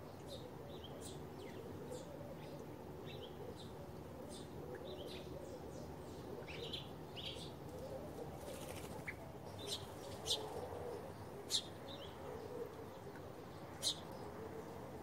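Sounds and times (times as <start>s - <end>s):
small birds chirping: 0.0s - 14.4s
wings flapping: 8.4s - 9.1s.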